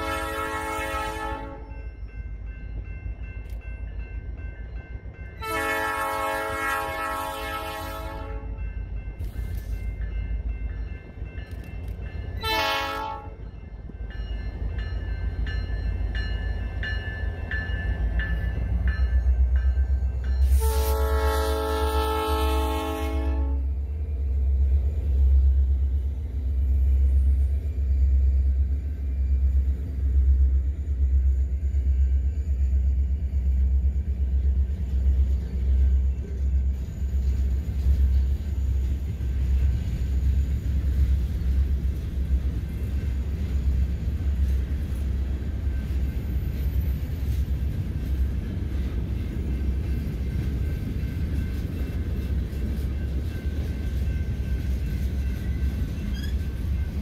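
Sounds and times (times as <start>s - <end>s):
locomotive air horn: 0.0s - 1.7s, 5.4s - 8.6s, 12.4s - 13.4s, 20.4s - 23.8s
freight train rumbling past: 0.0s - 57.0s.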